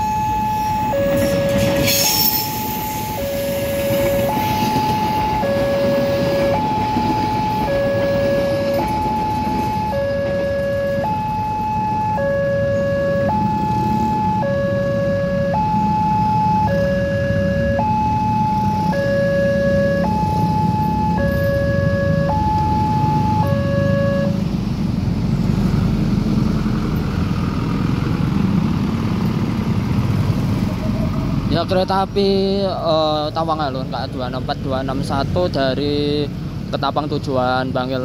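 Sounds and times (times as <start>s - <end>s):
train rumbling past: 0.0s - 11.1s
two-tone crossing alarm: 0.0s - 24.4s.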